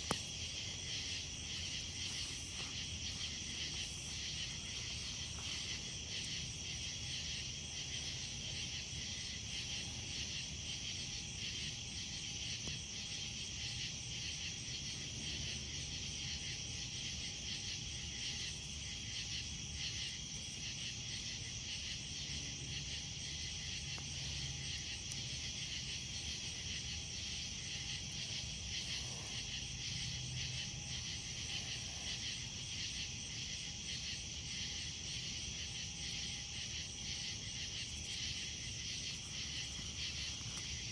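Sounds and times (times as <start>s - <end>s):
campfire burning: 0.0s - 11.2s, 23.0s - 35.2s
night insects chirping: 0.0s - 40.9s.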